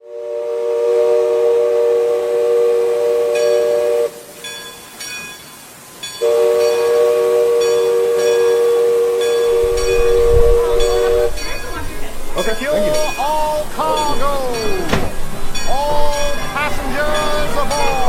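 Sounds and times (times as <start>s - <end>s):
steam whistle chord blasts: 0.0s - 4.7s, 6.1s - 11.6s.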